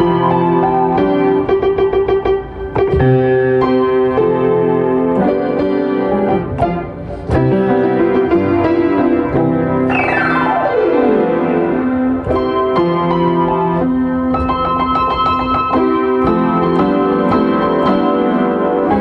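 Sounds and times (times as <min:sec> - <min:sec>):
piano glissando: 0:09.8 - 0:13.7
piano chords: 0:09.8 - 0:15.8.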